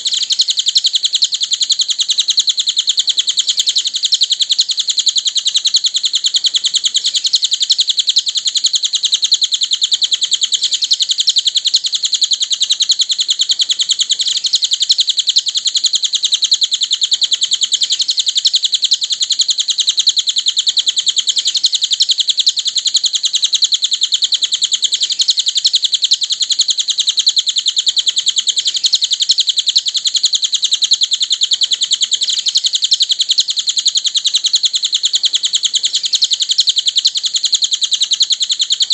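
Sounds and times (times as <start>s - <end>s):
rapid high-pitched bird chirping: 0.0s - 38.9s.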